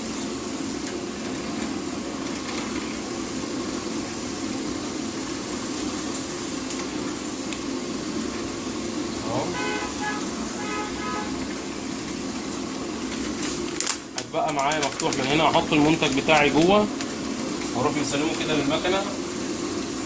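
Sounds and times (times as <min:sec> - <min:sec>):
band sealer mechanical whir: 0:00.0 - 0:14.2.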